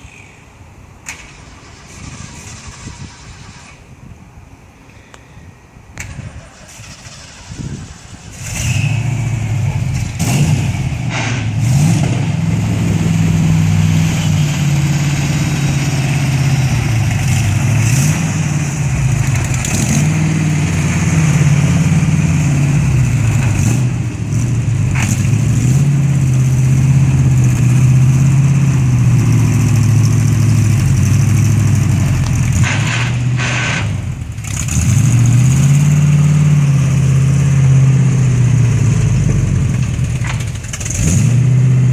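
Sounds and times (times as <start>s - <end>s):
v eight engine revving: 6.6s - 41.9s.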